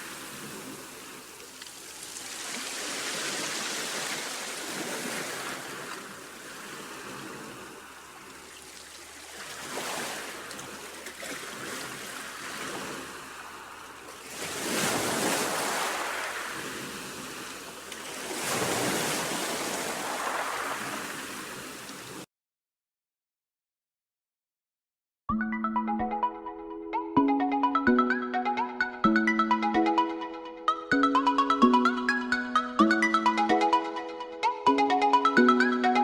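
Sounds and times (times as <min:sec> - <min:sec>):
sea surf washing ashore: 0:00.0 - 0:22.2.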